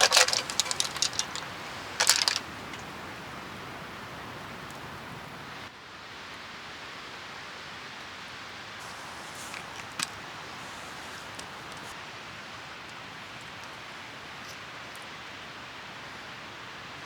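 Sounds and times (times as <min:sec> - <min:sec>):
shells clinking in a pot: 0:00.0 - 0:02.8
steady hiss: 0:00.0 - 0:05.7, 0:08.6 - 0:15.1.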